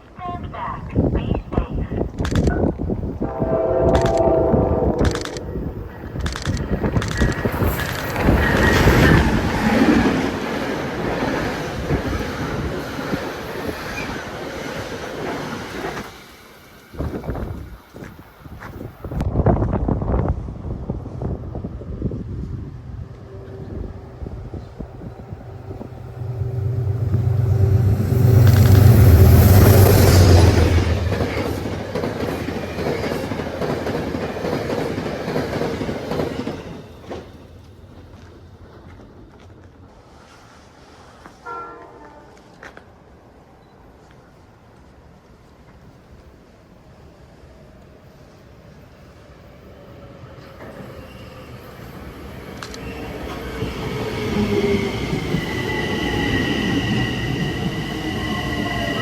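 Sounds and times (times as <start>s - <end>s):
train rumbling past: 2.1s - 59.0s
train wheels clattering over rails: 24.6s - 39.6s.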